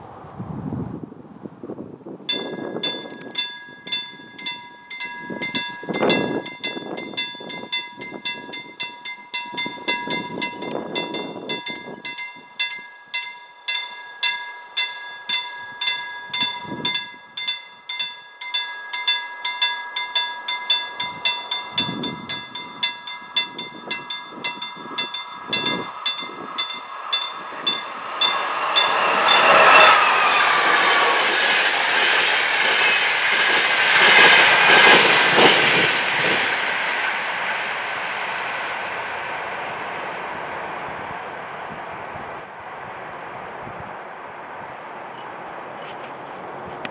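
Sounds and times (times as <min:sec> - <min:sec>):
train wheel and rail noise: 0:00.0 - 0:46.9
level crossing bell ringing: 0:02.3 - 0:31.5.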